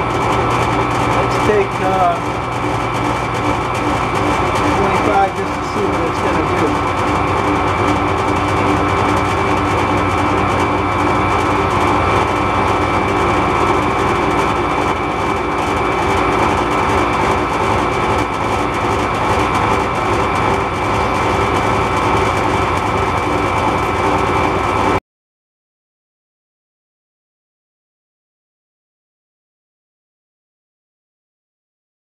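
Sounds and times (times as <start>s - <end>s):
metal lathe whining: 0.0s - 25.0s.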